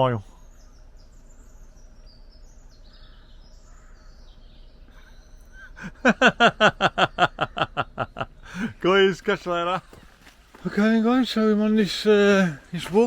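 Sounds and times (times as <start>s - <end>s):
faint bird chirps: 0.0s - 13.0s
person laughing loudly: 4.9s - 8.8s.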